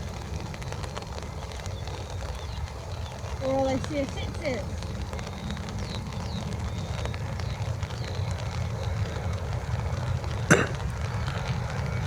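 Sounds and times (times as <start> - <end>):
jet engines rumbling at takeoff: 0.0 - 12.0.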